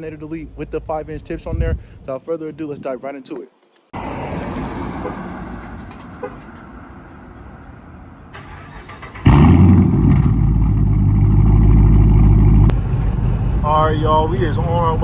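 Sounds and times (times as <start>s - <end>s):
car engine starting and idling: 4.0s - 15.0s.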